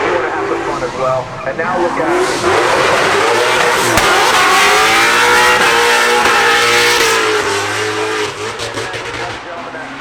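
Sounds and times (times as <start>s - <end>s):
racing car engine at high revs: 0.0s - 10.0s.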